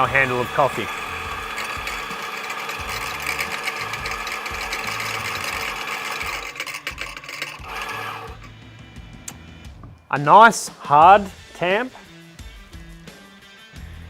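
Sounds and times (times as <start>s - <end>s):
electric coffee grinder whirring: 0.0s - 8.5s.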